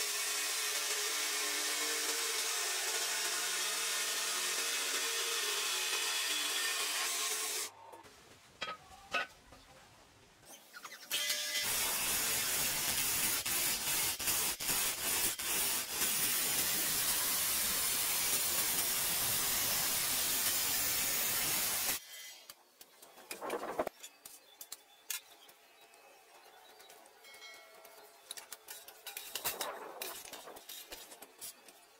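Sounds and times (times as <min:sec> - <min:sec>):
pressurised gas spray hiss: 0:11.7 - 0:22.0.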